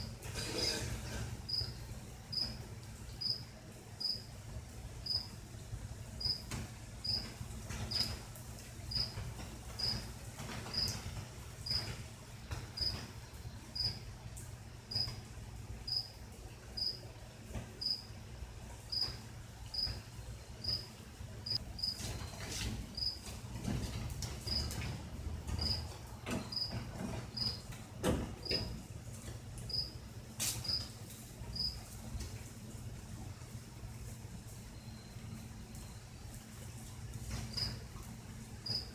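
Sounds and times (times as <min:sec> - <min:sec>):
cricket chirping: 0:01.5 - 0:01.7, 0:02.3 - 0:02.5, 0:03.2 - 0:03.4, 0:04.0 - 0:04.3, 0:05.0 - 0:05.3, 0:06.2 - 0:07.3, 0:07.9 - 0:08.1, 0:08.9 - 0:09.2, 0:09.8 - 0:10.0, 0:10.7 - 0:11.0, 0:11.7 - 0:11.9, 0:12.8 - 0:13.0, 0:13.8 - 0:14.0, 0:14.9 - 0:15.1, 0:15.9 - 0:16.1, 0:16.8 - 0:17.0, 0:17.8 - 0:18.1, 0:18.9 - 0:20.0, 0:20.6 - 0:20.8, 0:23.0 - 0:23.2, 0:25.6 - 0:25.8, 0:26.5 - 0:26.7, 0:27.4 - 0:27.6, 0:29.7 - 0:29.9, 0:31.6 - 0:31.8, 0:38.6 - 0:38.9.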